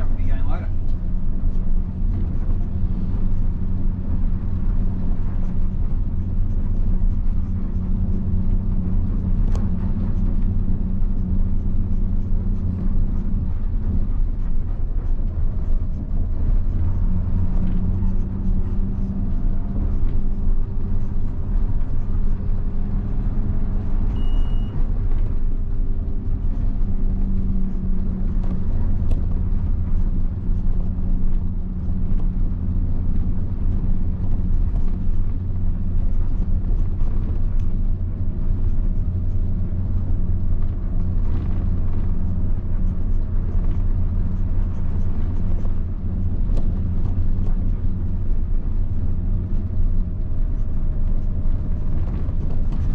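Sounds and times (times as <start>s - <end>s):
bus diesel engine droning: 0.0s - 52.9s.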